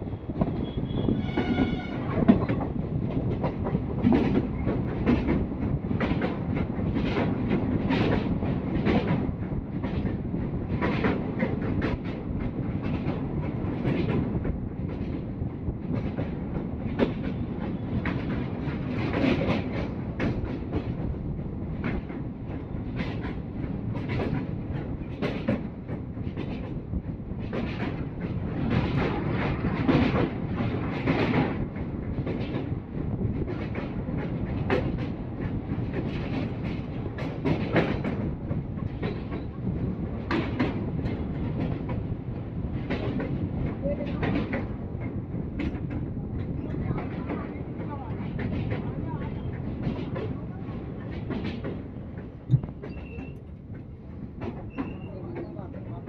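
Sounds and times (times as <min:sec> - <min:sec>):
train rumble on steel bridge: 0:00.0 - 0:56.0.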